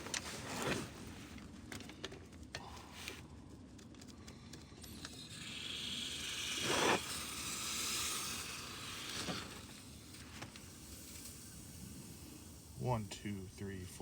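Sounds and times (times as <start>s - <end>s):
pressurized flush hissing: 5.3s - 13.4s.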